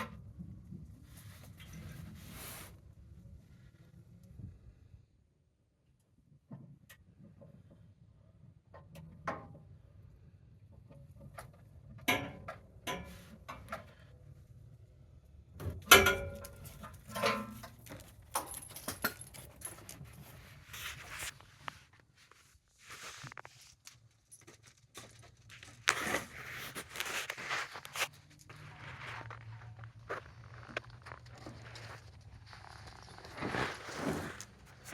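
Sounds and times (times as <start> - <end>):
rustling: 16.5 - 34.9.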